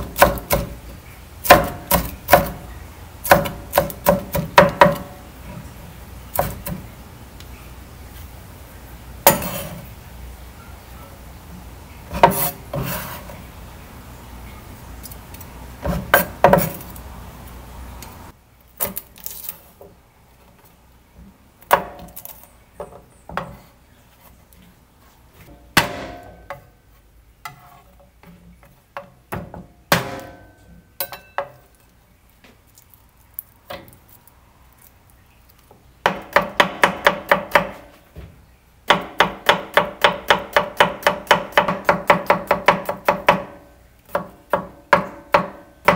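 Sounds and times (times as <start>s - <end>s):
knife chopping on cutting board: 12.1s - 13.0s.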